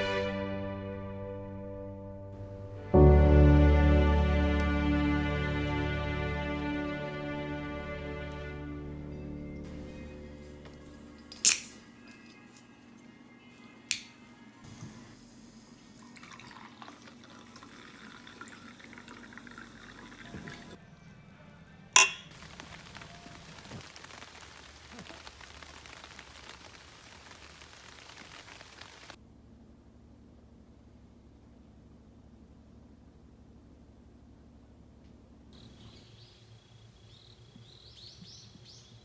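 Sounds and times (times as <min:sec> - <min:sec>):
music: 0:00.0 - 0:14.6
sharp clinks: 0:11.2 - 0:12.7
liquid trickling: 0:14.7 - 0:20.8, 0:22.3 - 0:29.2.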